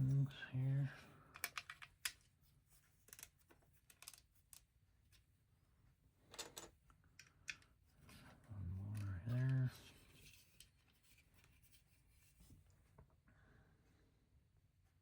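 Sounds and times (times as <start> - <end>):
plastic toy bricks clicking: 1.3 - 2.2, 3.1 - 3.3, 3.9 - 4.7.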